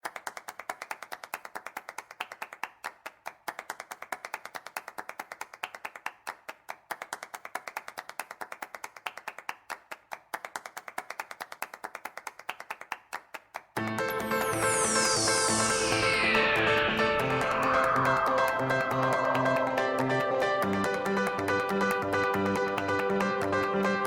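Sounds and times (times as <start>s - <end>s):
electronic soundtrack: 13.8s - 24.0s.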